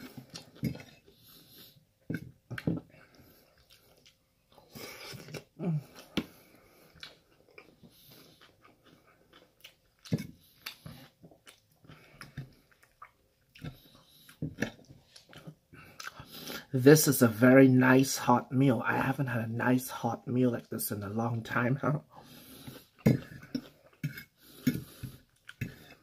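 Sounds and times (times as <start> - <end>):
person chewing and biting: 0.0 - 16.3, 22.6 - 26.0.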